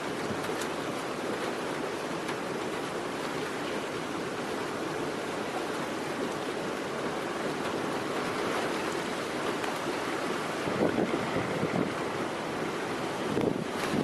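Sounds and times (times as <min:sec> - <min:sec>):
rushing storm noise: 0:10.1 - 0:14.0.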